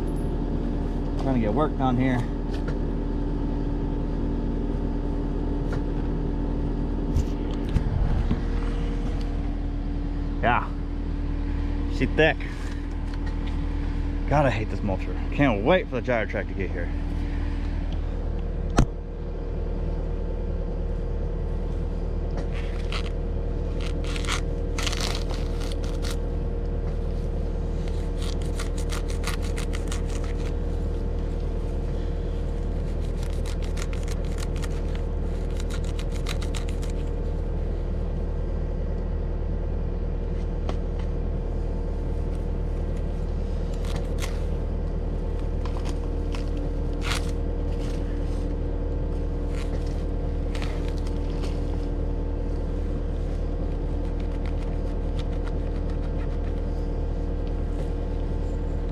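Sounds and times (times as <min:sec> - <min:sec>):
diesel engine running under load: 0:00.0 - 0:58.9
mulcher chewing through brush: 0:22.5 - 0:26.3, 0:27.7 - 0:37.2, 0:43.4 - 0:48.3, 0:49.4 - 0:52.0
vegetation crackling and snapping: 0:22.6 - 0:26.2, 0:27.9 - 0:30.6, 0:32.7 - 0:37.1, 0:43.7 - 0:44.4.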